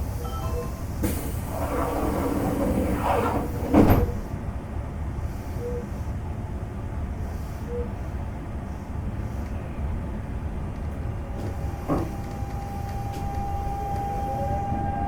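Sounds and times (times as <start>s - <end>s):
air conditioning hum: 0.0s - 15.0s
sliding doors closing with thud: 1.0s - 4.3s, 11.4s - 15.0s.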